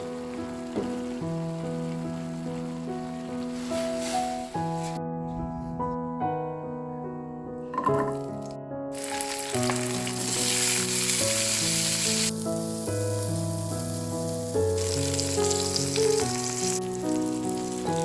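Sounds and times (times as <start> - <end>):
food sizzling in hot oil: 0.0 - 4.9, 8.9 - 18.0.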